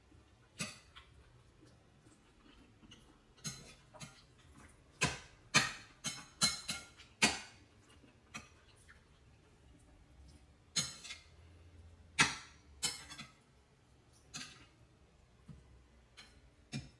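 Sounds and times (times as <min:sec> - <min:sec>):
kitchen utensils clattering: 0:10.8 - 0:11.3, 0:12.2 - 0:13.4.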